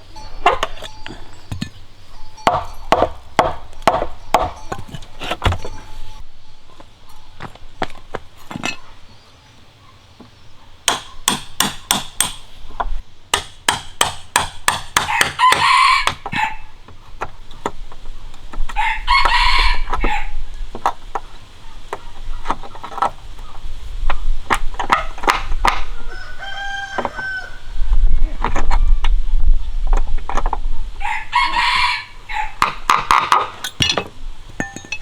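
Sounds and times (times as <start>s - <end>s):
hammering on wood: 2.4s - 5.6s, 10.8s - 16.4s, 24.5s - 25.9s, 32.6s - 34.9s
rooster crowing: 15.0s - 16.7s, 18.8s - 20.4s, 25.9s - 27.9s, 31.0s - 32.7s.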